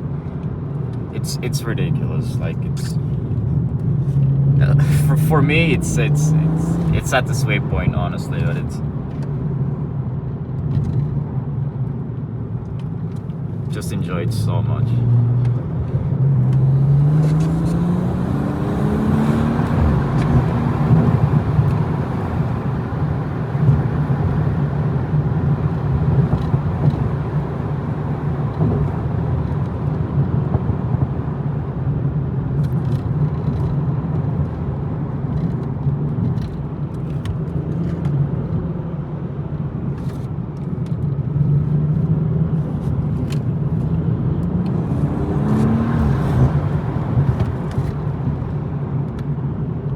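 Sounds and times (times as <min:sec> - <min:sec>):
road noise: 0:00.0 - 0:49.9
car engine accelerating: 0:00.3 - 0:09.2, 0:13.7 - 0:49.1.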